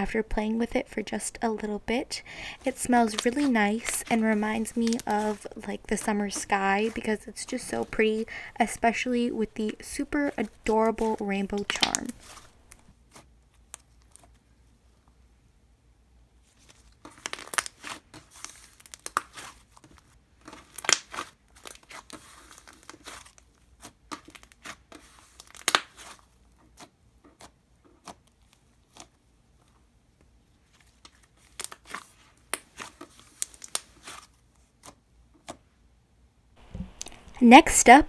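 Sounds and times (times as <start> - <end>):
slime tearing: 17.0 - 29.2, 30.9 - 35.6
slime crackling pops: 20.7 - 21.3.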